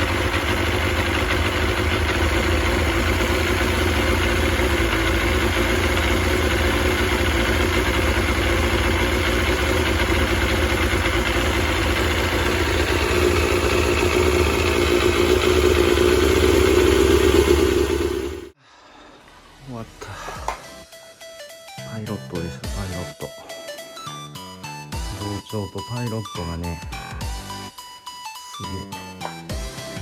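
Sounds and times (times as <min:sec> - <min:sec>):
motorcycle engine idling: 0:00.0 - 0:18.6.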